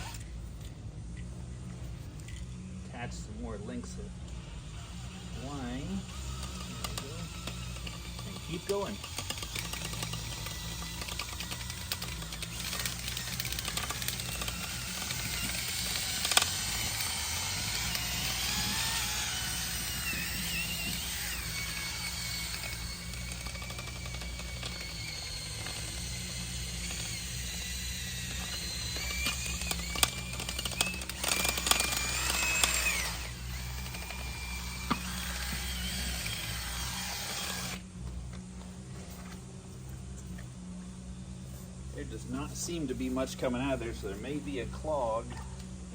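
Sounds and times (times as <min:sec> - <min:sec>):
drill motor whine: 0:00.0 - 0:00.6, 0:02.7 - 0:39.3.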